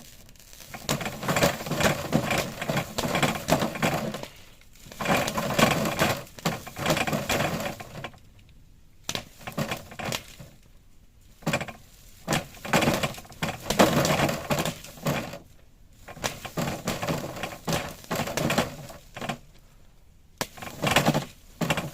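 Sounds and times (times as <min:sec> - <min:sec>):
plastic film crinkling: 0:00.0 - 0:08.2.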